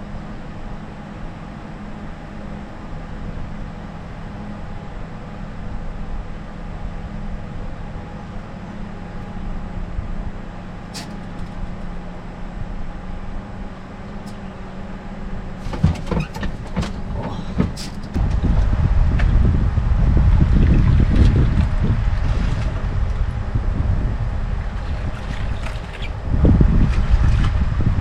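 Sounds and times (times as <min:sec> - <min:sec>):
boat motor humming: 0:00.0 - 0:28.0
rush of wind and water: 0:00.0 - 0:28.0
sharp knocks and clatter: 0:15.6 - 0:18.7.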